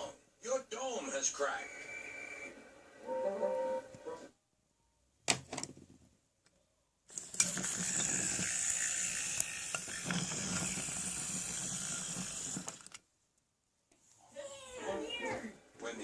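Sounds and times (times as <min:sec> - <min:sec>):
toy train rolling on wooden track: 0:07.1 - 0:13.0
wooden toy trains clacking: 0:07.1 - 0:13.0.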